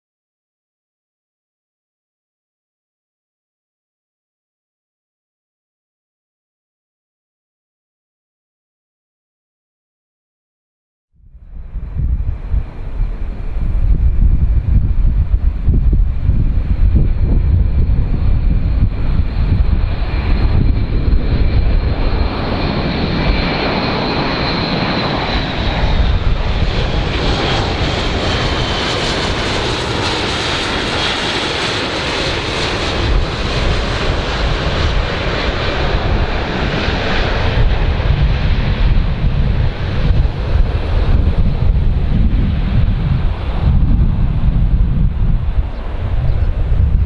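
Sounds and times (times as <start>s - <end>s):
aircraft engines rumbling: 11.2s - 47.0s.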